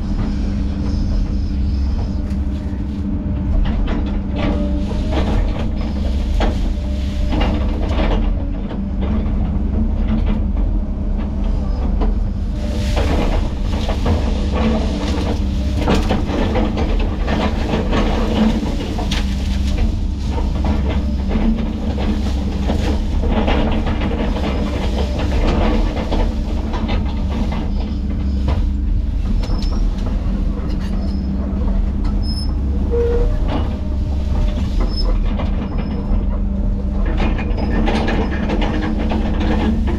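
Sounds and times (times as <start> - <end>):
heavy diesel machinery running: 0.0 - 39.9
cracks and clanks: 12.8 - 32.7.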